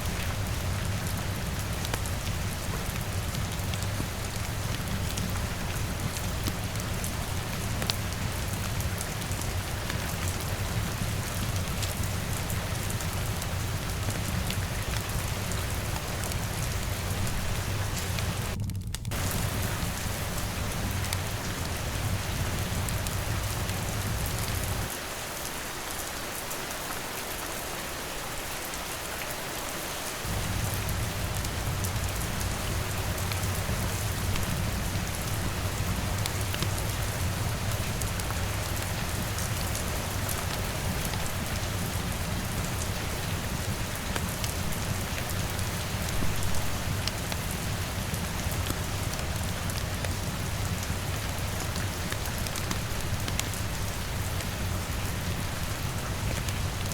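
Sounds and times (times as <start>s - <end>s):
rain pattering on a window: 0.0s - 56.9s
low rumble: 13.7s - 24.9s.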